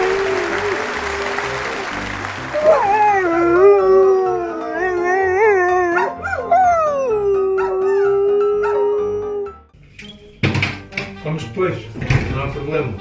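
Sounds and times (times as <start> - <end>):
dog howling: 0.0 - 9.6.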